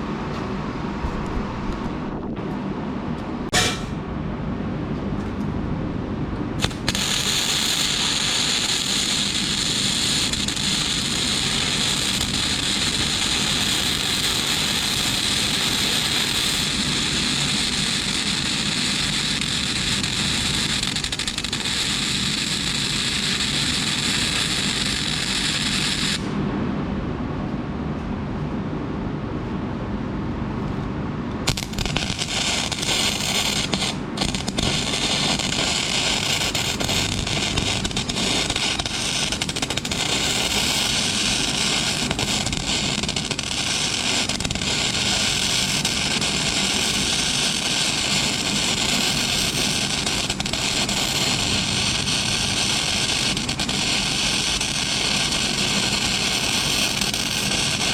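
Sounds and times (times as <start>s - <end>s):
low steady background noise: 0.0s - 57.9s
arc welding crackling hiss: 6.6s - 26.3s, 31.5s - 57.9s.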